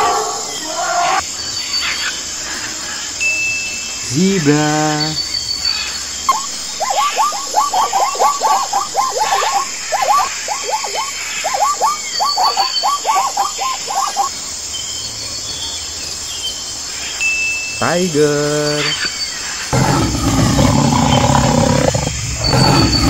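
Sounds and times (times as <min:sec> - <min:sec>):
faint high chirps: 0:03.1 - 0:17.9, 0:19.8 - 0:23.0
zebra barking: 0:06.8 - 0:14.3, 0:19.8 - 0:23.0.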